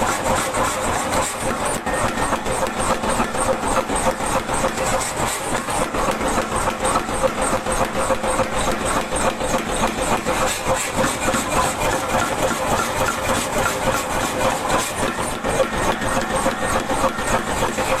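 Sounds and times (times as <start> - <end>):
power hammer striking steel: 0.0 - 18.0.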